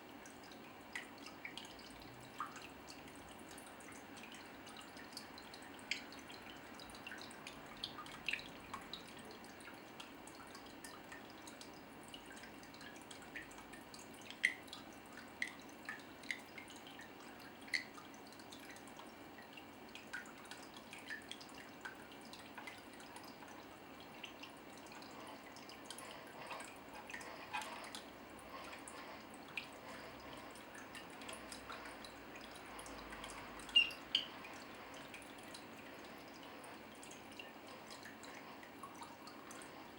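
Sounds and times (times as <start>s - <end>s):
faint water hiss: 0.0s - 39.9s
water drops plinking: 33.2s - 34.6s.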